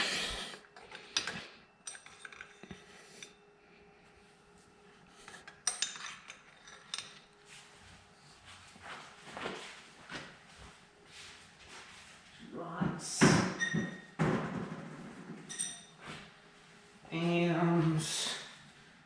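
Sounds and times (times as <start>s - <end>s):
metal parts clinking: 1.2s - 2.8s, 5.4s - 7.2s.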